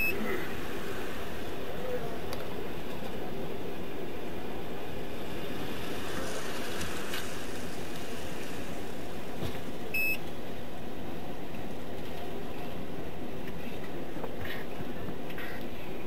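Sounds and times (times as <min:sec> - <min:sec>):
short electronic beep: 0:10.0 - 0:10.2.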